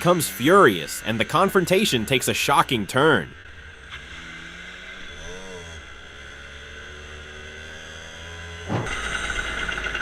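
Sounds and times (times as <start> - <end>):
faint vehicle engine hum: 0.0 - 10.0
rising and falling tone: 8.6 - 9.3.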